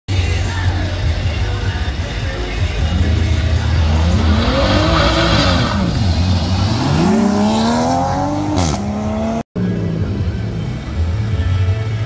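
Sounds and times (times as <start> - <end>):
sports car engine revving: 2.8 - 9.4.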